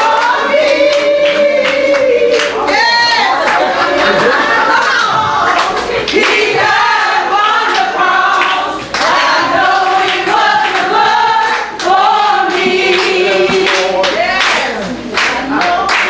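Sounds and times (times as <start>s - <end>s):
group of voices singing: 0.0s - 16.0s
handclaps: 9.8s - 16.0s.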